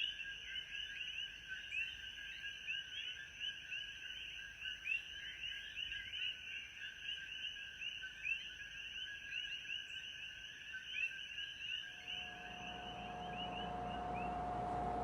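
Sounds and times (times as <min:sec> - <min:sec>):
steady high-pitched whine: 0:11.9 - 0:15.0.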